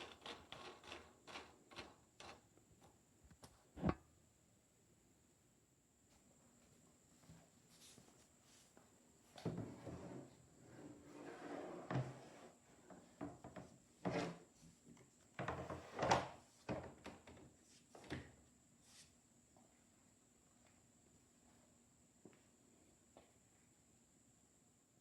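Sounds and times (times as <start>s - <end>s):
object knocks and scrapes: 3.8s - 4.0s.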